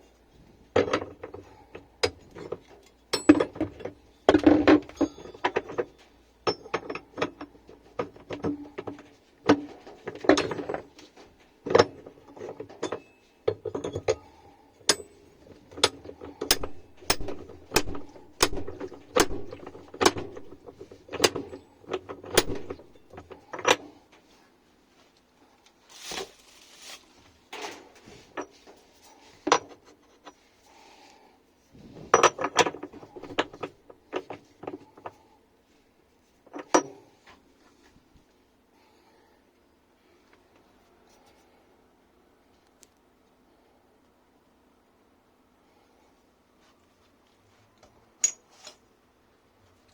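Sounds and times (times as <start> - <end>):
hand tools clicking on metal: 14.9 - 23.9.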